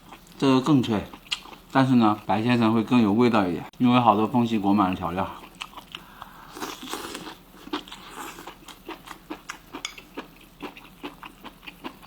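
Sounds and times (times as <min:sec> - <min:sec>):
person chewing crunchy food: 0:05.4 - 0:12.0.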